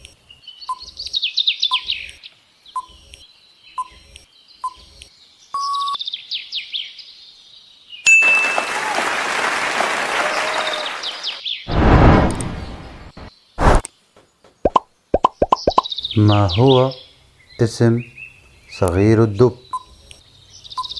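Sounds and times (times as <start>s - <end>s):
recorded birdsong chirps: 0.0s - 8.4s, 10.2s - 20.9s
loud hissing effect: 11.7s - 13.8s.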